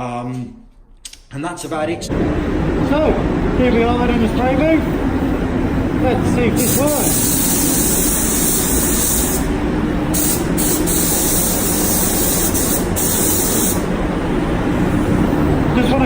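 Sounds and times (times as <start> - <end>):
spray booth fans droning: 2.1 - 16.0
spray gun hissing: 6.3 - 15.1.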